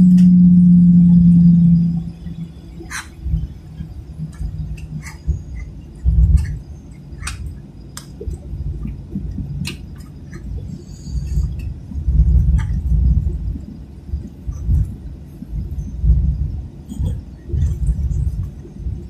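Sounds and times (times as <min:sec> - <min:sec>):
aircraft cabin low rumble: 0:00.0 - 0:19.0.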